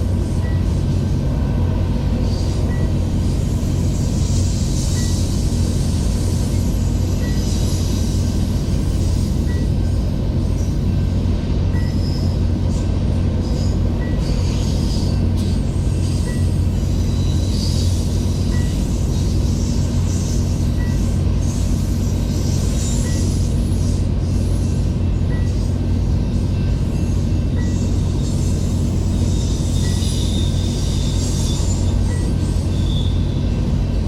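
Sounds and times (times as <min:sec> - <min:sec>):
freight train rumbling past: 0:00.0 - 0:34.0
train wheel squeals: 0:00.0 - 0:34.0.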